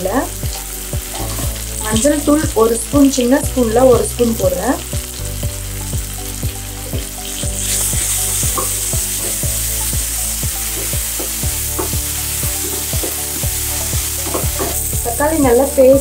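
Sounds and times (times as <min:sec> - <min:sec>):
background music with steady beat: 0:00.0 - 0:16.0
masala sizzling in oil: 0:00.0 - 0:16.0
spatula stirring: 0:06.2 - 0:15.2.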